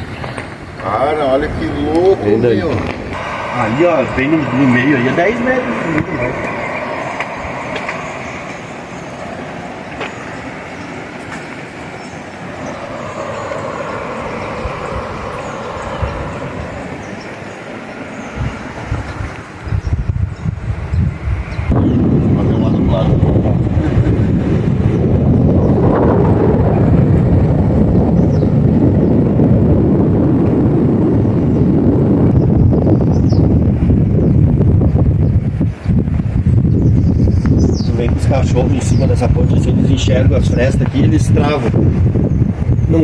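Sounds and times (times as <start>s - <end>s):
river rapids rushing: 3.2s - 19.6s.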